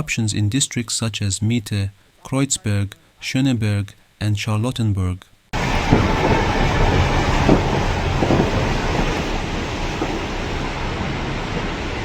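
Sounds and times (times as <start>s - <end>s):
water rushing from burst main: 5.6s - 12.0s.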